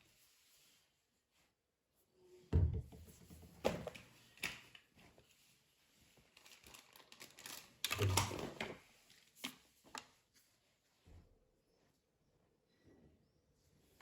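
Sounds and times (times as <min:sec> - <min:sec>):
heavy thump: 0:02.6 - 0:03.2.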